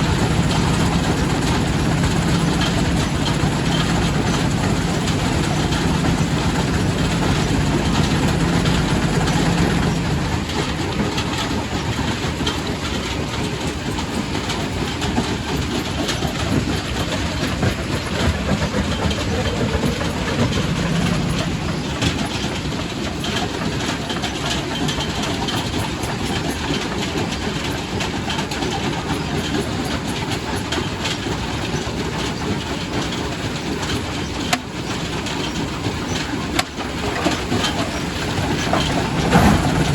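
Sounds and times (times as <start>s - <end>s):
low mechanical hum: 0.0s - 11.2s, 37.1s - 39.9s
rock crusher clattering: 0.0s - 12.6s, 14.9s - 25.0s, 36.2s - 39.9s.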